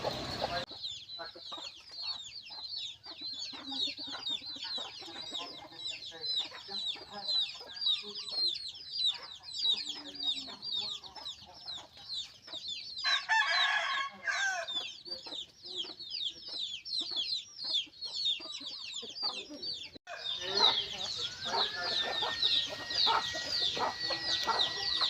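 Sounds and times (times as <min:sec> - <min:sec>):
chicks peeping: 0:00.0 - 0:25.0
rooster crowing: 0:13.0 - 0:14.8, 0:20.1 - 0:25.0.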